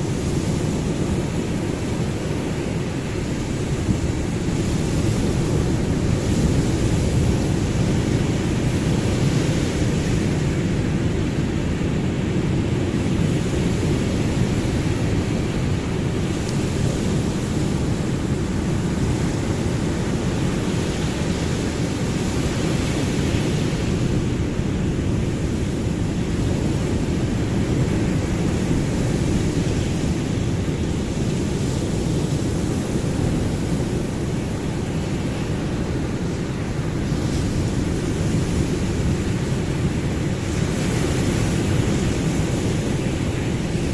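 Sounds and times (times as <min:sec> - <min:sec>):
ocean waves rushing: 0:00.0 - 0:43.9.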